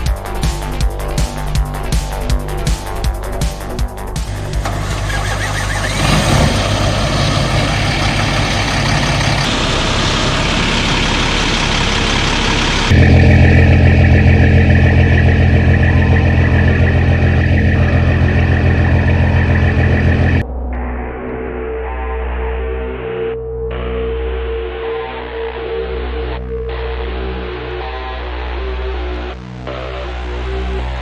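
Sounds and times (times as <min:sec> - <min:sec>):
heavy truck diesel engine running: 0:04.2 - 0:20.4.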